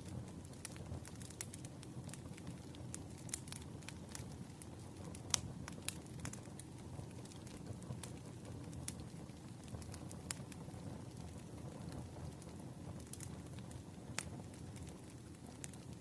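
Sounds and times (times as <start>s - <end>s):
logs crackling and popping: 0.0s - 16.0s
low rumble of flame: 0.0s - 16.0s.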